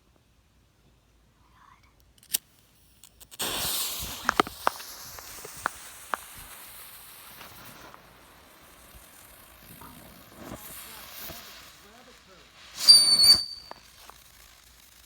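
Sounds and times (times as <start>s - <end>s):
firework crackling pops: 2.0s - 15.0s
firework hissing: 2.3s - 15.0s.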